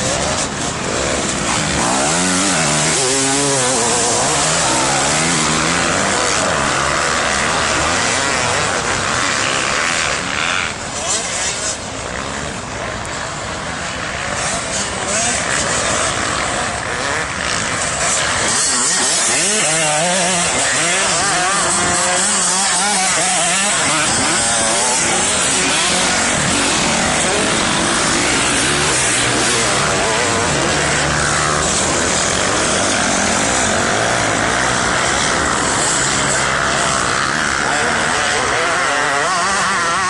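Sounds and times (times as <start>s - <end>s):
dirt bike engines revving: 0.0s - 40.0s.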